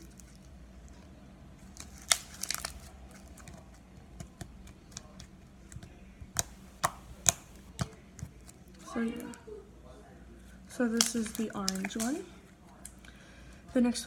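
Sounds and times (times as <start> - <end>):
slime squishing: 0.0 - 9.4, 10.9 - 13.0
sharp clicking pops: 3.4 - 7.9.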